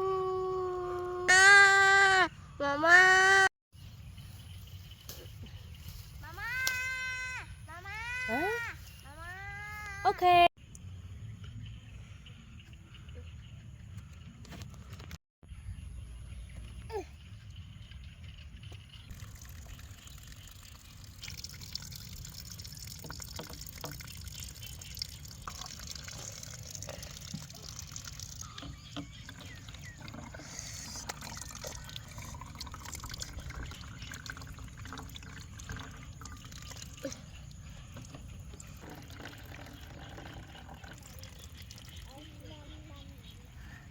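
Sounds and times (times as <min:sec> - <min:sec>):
water trickling and dripping: 0:17.5 - 0:43.4.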